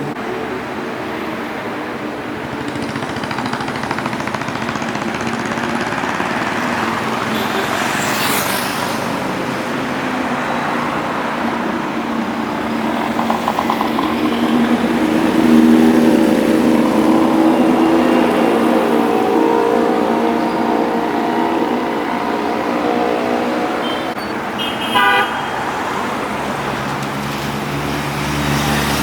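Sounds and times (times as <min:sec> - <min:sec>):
road traffic: 0:00.0 - 0:29.0
motorcycle engines running: 0:01.9 - 0:24.2.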